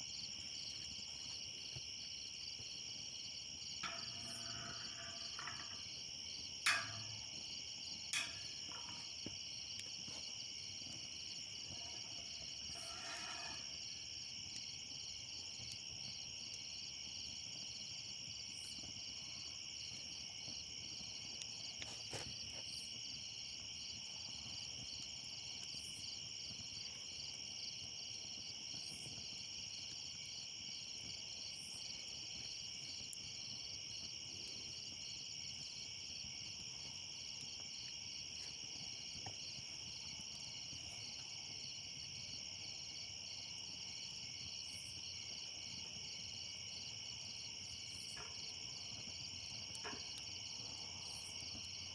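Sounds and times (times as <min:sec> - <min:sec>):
high-pitched insect chorus: 0:02.2 - 0:17.8.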